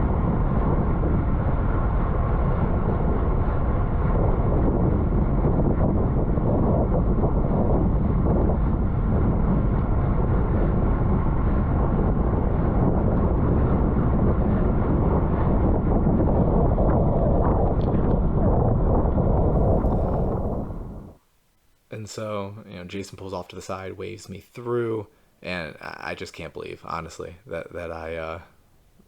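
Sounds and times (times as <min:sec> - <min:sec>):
wind rushing on microphone: 0:00.0 - 0:21.2.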